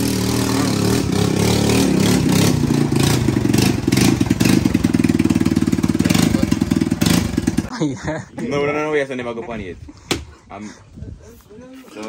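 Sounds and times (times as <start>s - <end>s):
dirt bike engine revving: 0.0s - 7.7s.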